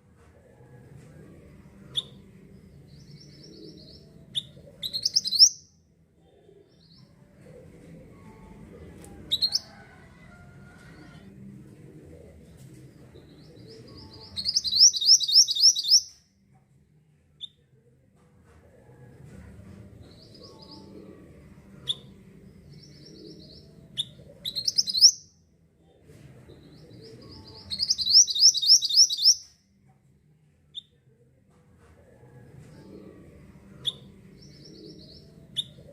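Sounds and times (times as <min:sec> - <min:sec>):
songbird singing rapid high notes: 0:04.8 - 0:05.6, 0:14.4 - 0:16.1, 0:27.7 - 0:29.5
sharp bird chips: 0:27.8 - 0:29.4.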